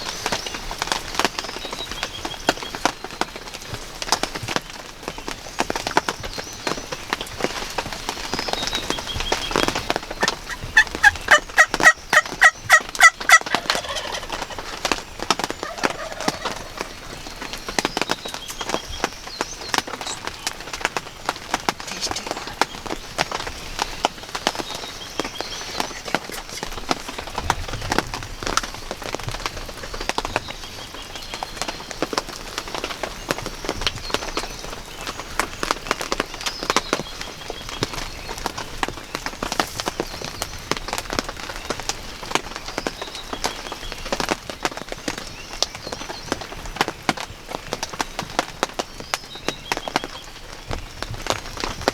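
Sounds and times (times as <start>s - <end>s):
rain hiss: 0.0s - 51.9s
raindrops ticking: 0.0s - 51.9s
wild turkey yelping: 9.4s - 17.5s.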